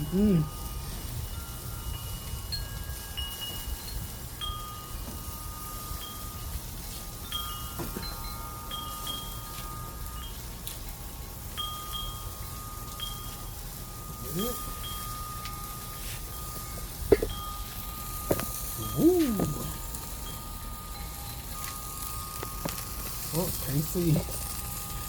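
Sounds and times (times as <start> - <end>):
wind chimes ringing: 0.0 - 25.0.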